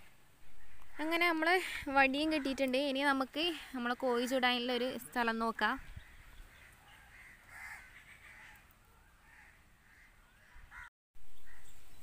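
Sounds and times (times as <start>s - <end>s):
faint bird calls: 5.8s - 12.0s.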